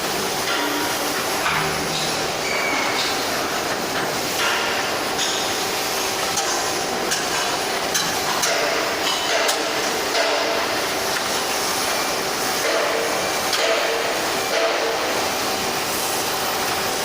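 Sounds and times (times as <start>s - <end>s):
industrial workshop noise: 0.0s - 17.0s
hammer striking metal: 0.5s - 3.2s, 8.0s - 10.7s.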